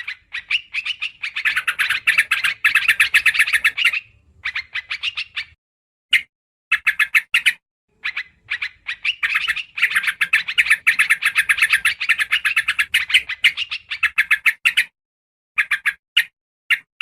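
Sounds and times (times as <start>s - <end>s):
bulbul chattering call: 0.0s - 5.6s, 6.7s - 14.6s.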